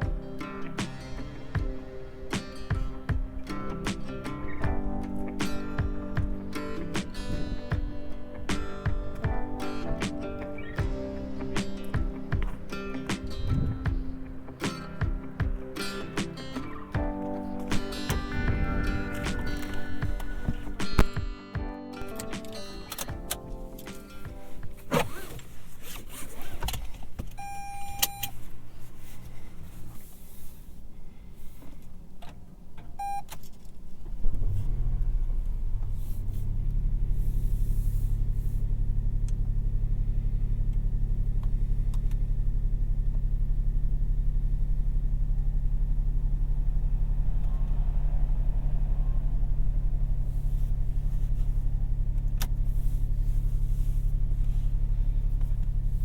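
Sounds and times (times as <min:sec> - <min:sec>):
car engine starting and idling: 0:00.0 - 0:21.3, 0:22.0 - 0:56.0
short electronic beeps: 0:27.4 - 0:28.3, 0:33.0 - 0:33.3.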